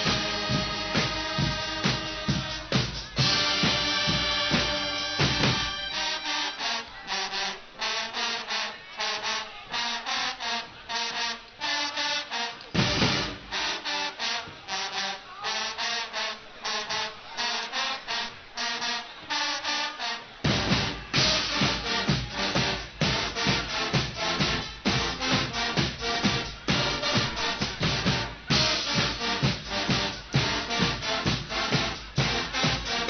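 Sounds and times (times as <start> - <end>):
drums: 0.0 - 7.8, 12.3 - 15.4, 20.2 - 33.0
brass band playing staccato chords: 0.0 - 33.0.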